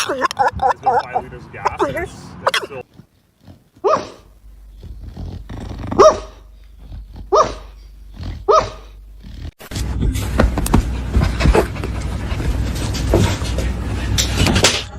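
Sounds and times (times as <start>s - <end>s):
noisy rumble with clattering: 0.0s - 14.9s
dog barking: 3.8s - 4.3s, 5.9s - 6.5s, 7.3s - 7.7s, 8.5s - 8.9s.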